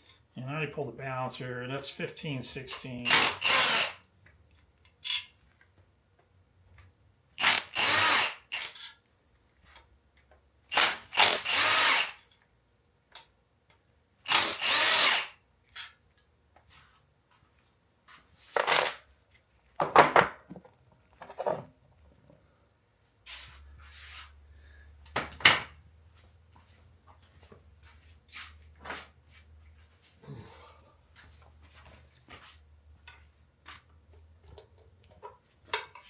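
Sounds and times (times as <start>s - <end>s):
metal parts clunking and clattering: 18.6s - 19.1s, 19.8s - 21.7s.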